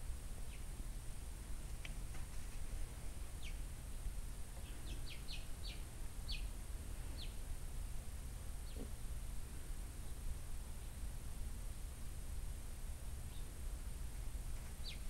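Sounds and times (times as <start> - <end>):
small bird chirping: 0.4 - 0.8, 3.3 - 7.4, 8.6 - 9.0, 13.3 - 13.6, 14.7 - 15.0.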